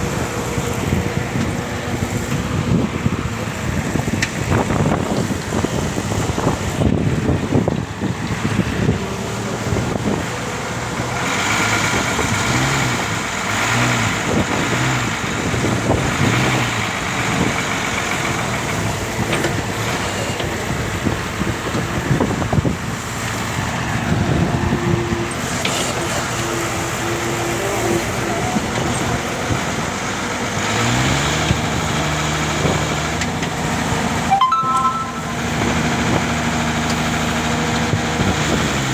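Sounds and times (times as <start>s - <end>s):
road noise: 0.0s - 38.9s
truck engine running: 0.0s - 38.9s.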